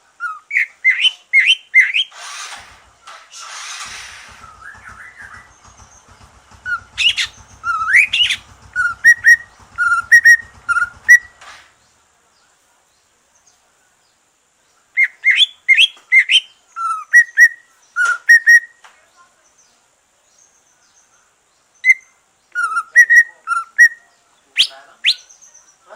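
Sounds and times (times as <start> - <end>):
bird whistling song: 0.2 - 2.2, 4.3 - 11.4, 15.0 - 18.8, 21.8 - 25.7.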